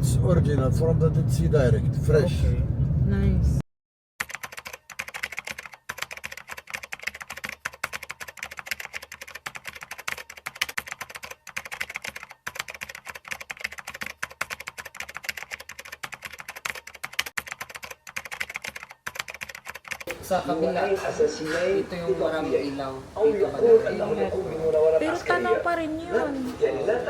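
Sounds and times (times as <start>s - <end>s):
rapid irregular clicks: 4.2s - 20.1s.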